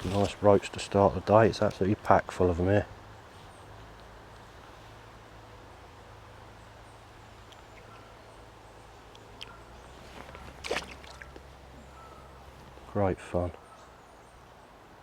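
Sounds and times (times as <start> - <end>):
faint bird chirps: 6.6 - 14.8.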